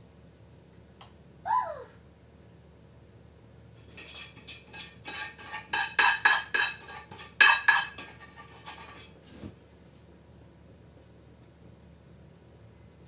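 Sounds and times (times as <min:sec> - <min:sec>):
spoon clinking against cookware: 0:03.8 - 0:09.1.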